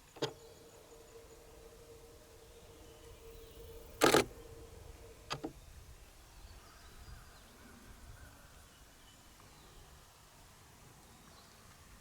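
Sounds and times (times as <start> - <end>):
faint steady hum: 0.0 - 12.0
camera shutter clicks: 4.0 - 4.3.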